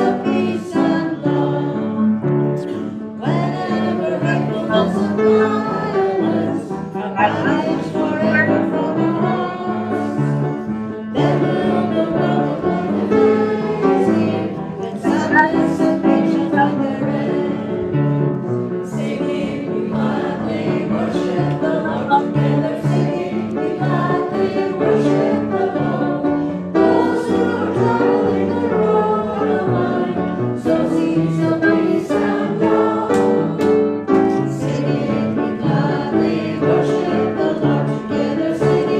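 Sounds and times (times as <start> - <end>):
group singing a hymn: 0.0 - 38.9
instrumental accompaniment: 3.4 - 9.5, 14.9 - 17.3.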